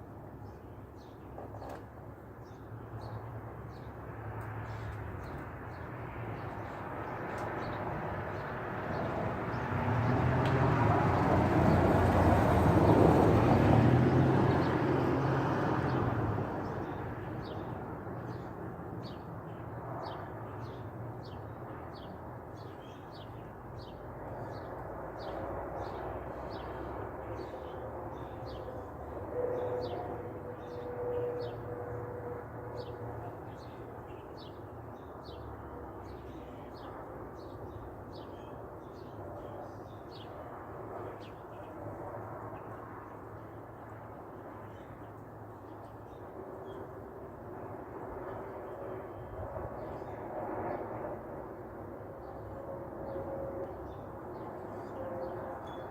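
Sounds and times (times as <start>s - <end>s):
vehicle passing by: 8.6s - 16.9s.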